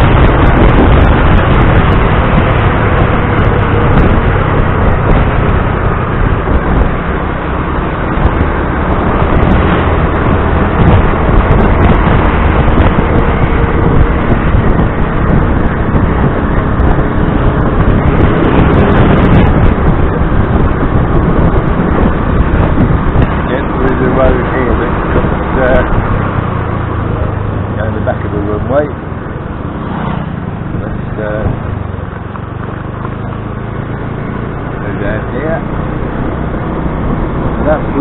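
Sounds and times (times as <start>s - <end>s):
road noise: 0.0s - 38.0s
wind rumble on microphone: 0.0s - 38.0s.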